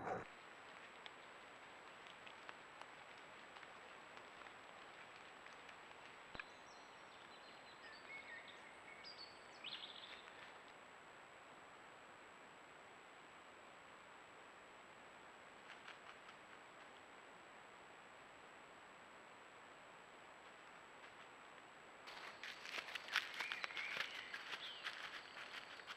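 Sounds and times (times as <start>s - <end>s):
faint bird calls: 22.1s - 25.9s.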